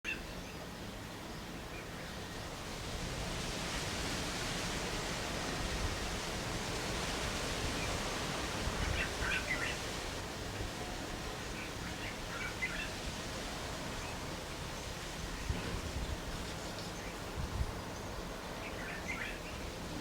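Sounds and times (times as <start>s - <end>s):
wind gusts rumbling on microphone: 2.0s - 20.0s
wind hissing: 2.0s - 20.0s.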